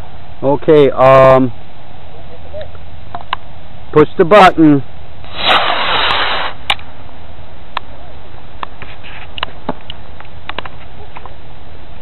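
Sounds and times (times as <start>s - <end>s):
rocket motor hiss: 5.2s - 6.8s.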